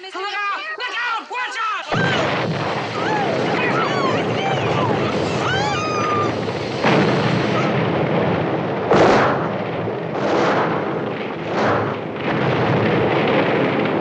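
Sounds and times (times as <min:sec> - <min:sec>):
explosions: 0:01.9 - 0:14.0
fuel fire rushing: 0:01.9 - 0:14.0.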